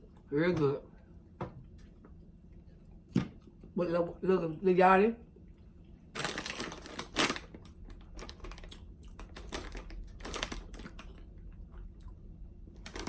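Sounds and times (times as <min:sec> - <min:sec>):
chips being crunched: 0:06.2 - 0:11.2
chip bag crackling: 0:06.2 - 0:11.3, 0:12.7 - 0:13.0.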